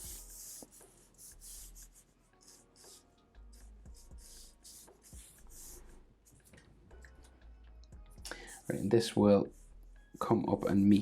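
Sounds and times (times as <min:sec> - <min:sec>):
pencil scratching on paper: 0:00.0 - 0:06.0, 0:08.5 - 0:11.0.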